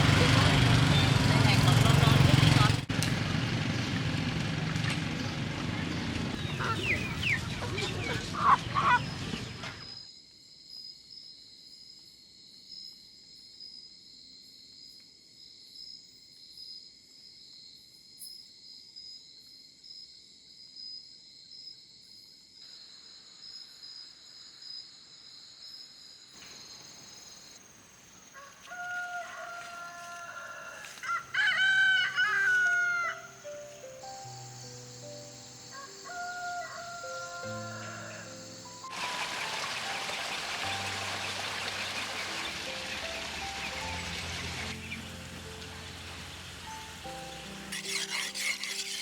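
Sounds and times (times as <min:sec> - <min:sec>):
chickens calling: 0:06.3 - 0:09.8, 0:38.9 - 0:45.0, 0:46.7 - 0:49.0
rooster crowing: 0:28.4 - 0:33.4, 0:35.7 - 0:38.6.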